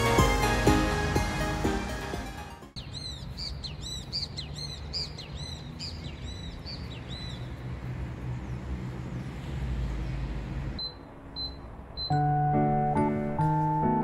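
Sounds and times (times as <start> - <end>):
songbird chirping rapidly: 2.8 - 12.6.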